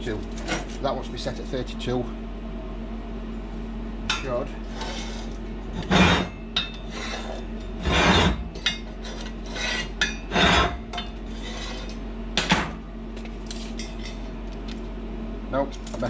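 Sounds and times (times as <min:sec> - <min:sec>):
steady low hum: 0:00.0 - 0:16.0
metal scrapes and clatters: 0:04.6 - 0:12.0.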